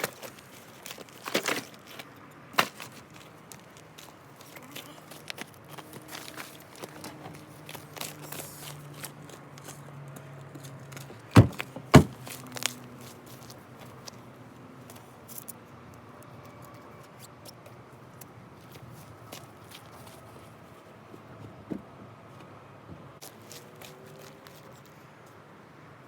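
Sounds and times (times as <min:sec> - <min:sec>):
sharp knocks: 0:11.4 - 0:12.2.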